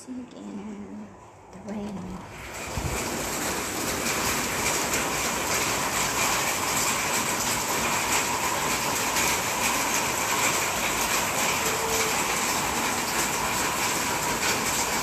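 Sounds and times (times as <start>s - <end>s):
rain falling: 0.4s - 15.0s.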